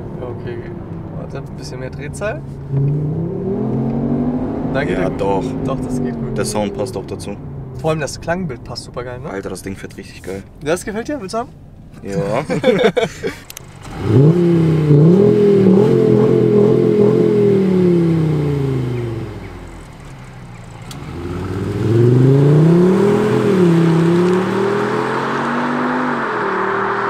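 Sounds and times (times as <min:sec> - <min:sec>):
car accelerating hard: 0:00.0 - 0:08.8, 0:13.5 - 0:27.0.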